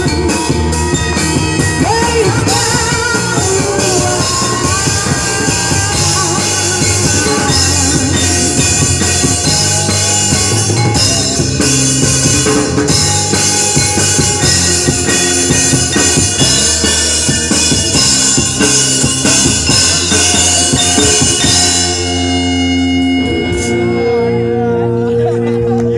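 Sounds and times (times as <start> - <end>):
busy drumming: 0.0 - 24.4
live band playing: 0.0 - 25.9.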